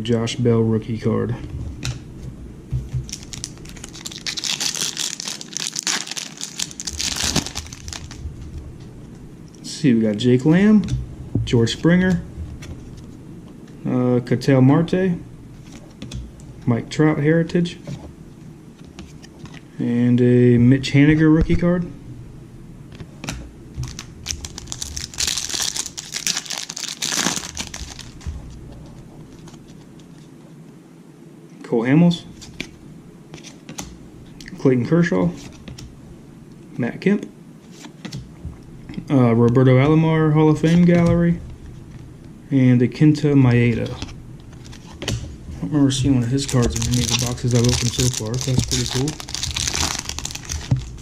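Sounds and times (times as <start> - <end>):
wrapper being torn and crinkled: 3.1 - 8.2, 23.8 - 28.2, 46.3 - 51.0.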